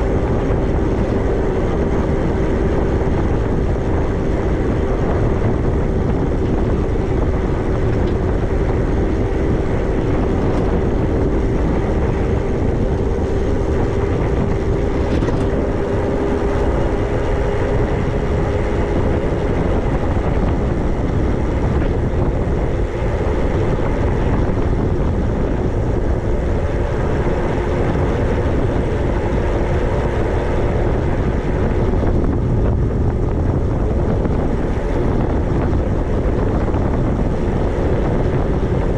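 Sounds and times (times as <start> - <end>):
constant whine: 0.0 - 38.9
wind rush over microphone: 0.0 - 38.9.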